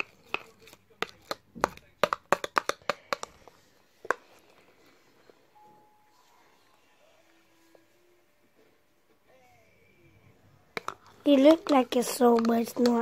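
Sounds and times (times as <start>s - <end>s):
spoon tapping in a bowl: 0.0s - 3.4s.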